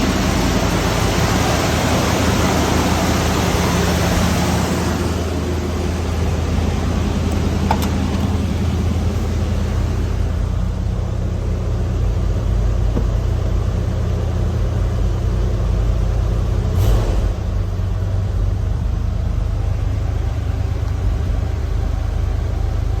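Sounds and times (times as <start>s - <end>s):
truck engine idling: 0.0s - 23.0s
short engine burst: 16.7s - 17.7s.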